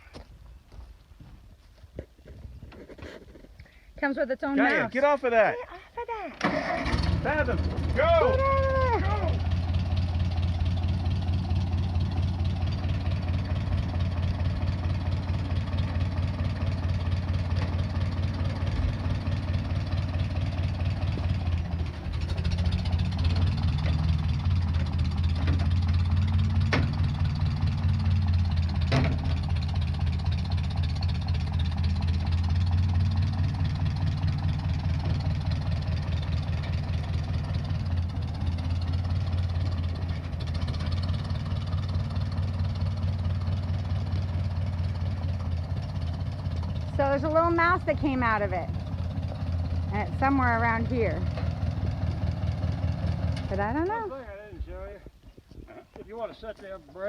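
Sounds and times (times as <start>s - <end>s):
tractor engine running: 2.2s - 55.3s.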